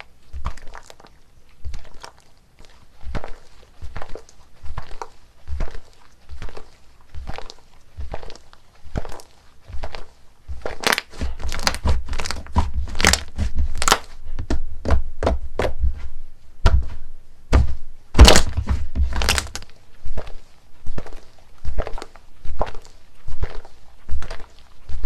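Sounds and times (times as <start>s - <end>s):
slime crackling and popping: 0.0s - 14.1s, 17.5s - 20.4s, 21.0s - 25.0s
dull thuds: 10.5s - 19.6s.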